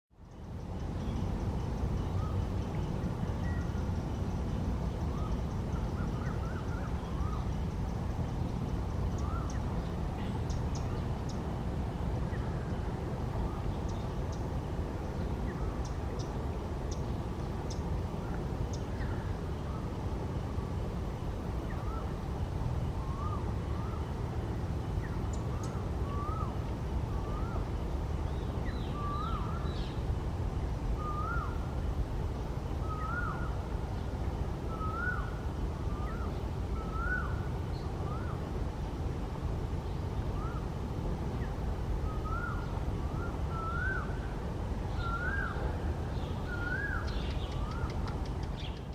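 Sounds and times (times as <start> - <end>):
faint high bird chirps: 0.2 - 11.4, 25.0 - 30.0, 31.0 - 31.6, 32.8 - 33.6, 34.7 - 38.4, 41.4 - 44.3, 44.9 - 48.9
bird calling in hooked notes: 25.3 - 27.7, 31.0 - 31.6, 34.7 - 35.3, 35.9 - 37.4, 42.0 - 44.2, 44.9 - 48.9.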